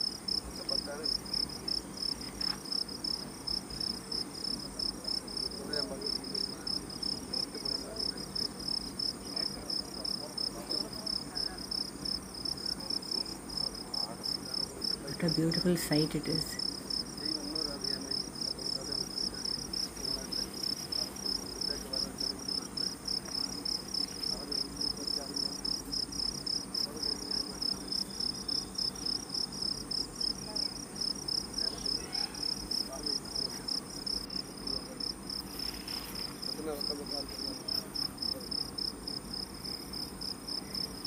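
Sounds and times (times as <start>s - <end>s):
insects chirping: 0.0s - 41.0s.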